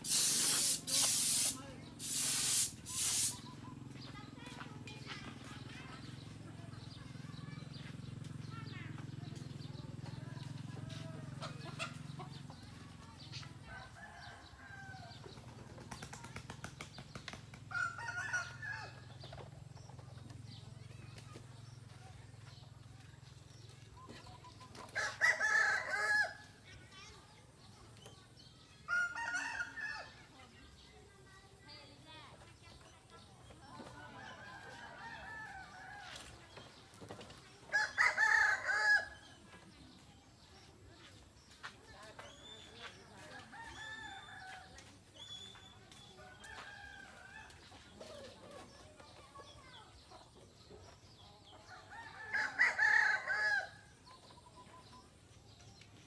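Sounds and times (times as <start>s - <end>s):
rooster crowing: 52.0s - 53.8s.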